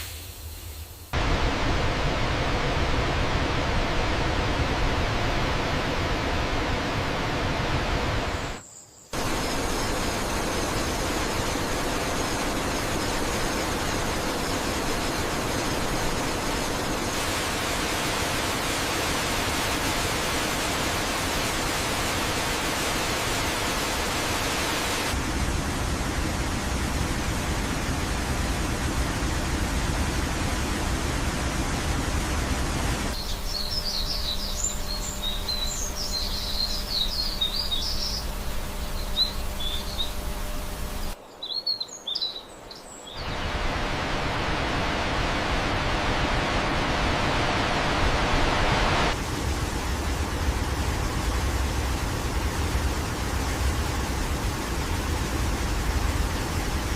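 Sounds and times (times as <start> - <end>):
waterfall rushing: 9.2 - 33.7, 43.1 - 56.9
birds chirping: 33.2 - 43.8.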